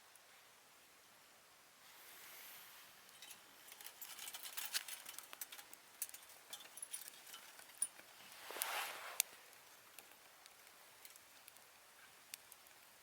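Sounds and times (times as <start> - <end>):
soft rustle: 1.8 - 13.0
small sharp clicks and crackles: 3.0 - 13.0.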